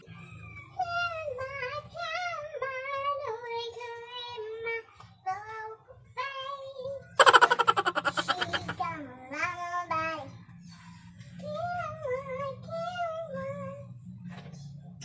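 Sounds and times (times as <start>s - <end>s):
child singing: 11.4s - 13.8s.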